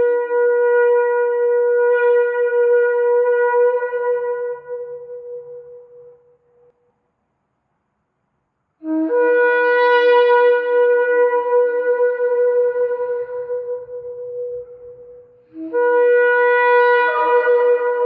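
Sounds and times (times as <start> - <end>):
shofar blasts: 8.8 - 18.0.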